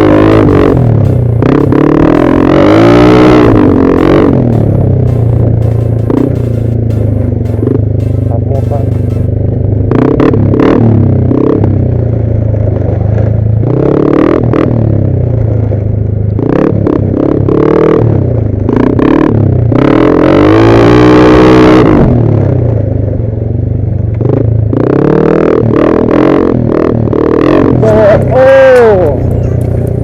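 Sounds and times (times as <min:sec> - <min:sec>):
scooter engine revving: 0:00.0 - 0:15.6, 0:24.4 - 0:30.0.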